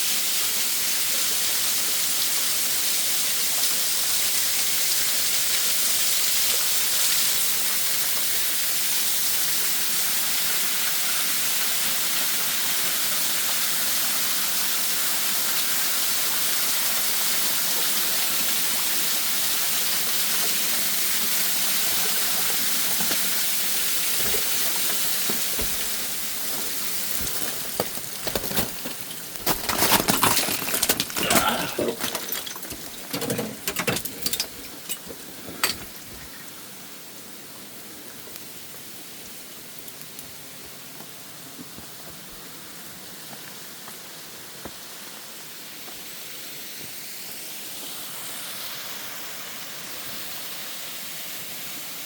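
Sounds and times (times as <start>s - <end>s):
waterfall rushing: 13.5s - 29.4s.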